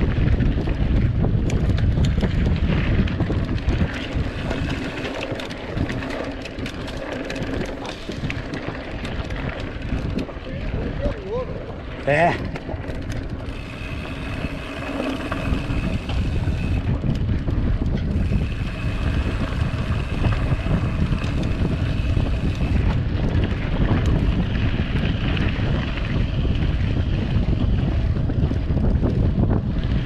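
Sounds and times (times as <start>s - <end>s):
bike on dirt road: 0.0s - 30.0s
wind buffeting microphone: 0.0s - 30.0s.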